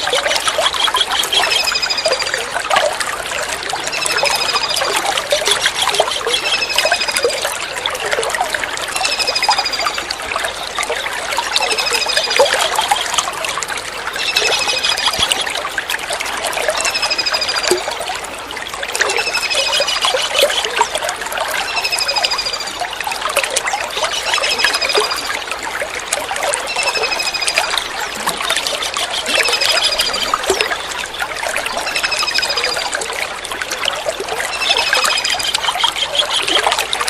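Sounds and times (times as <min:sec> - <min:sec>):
running water trickling: 0:00.0 - 0:37.0.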